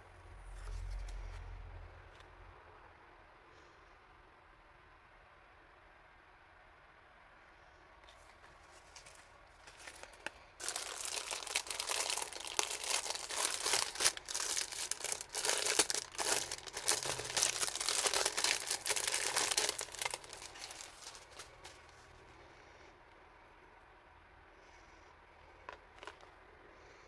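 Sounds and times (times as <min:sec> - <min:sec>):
packaging crinkling and tearing: 0:08.6 - 0:22.0, 0:25.6 - 0:26.3.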